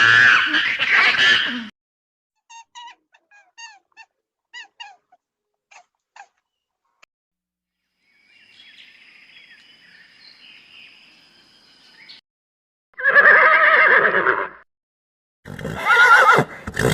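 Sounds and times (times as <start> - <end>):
birds chirping: 8.0 - 12.2.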